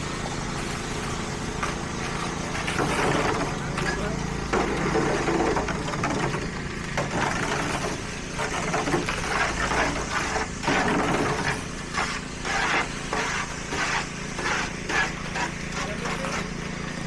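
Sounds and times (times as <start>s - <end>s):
diesel engine idling: 0.0s - 7.0s.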